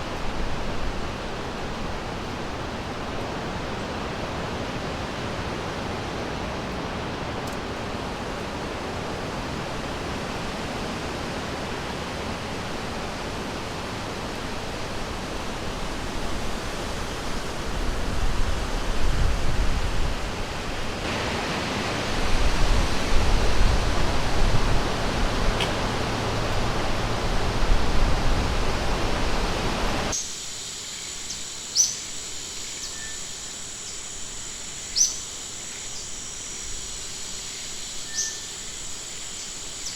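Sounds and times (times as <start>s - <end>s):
stream water rushing: 0.0s - 30.2s
high insect drone: 0.0s - 39.9s.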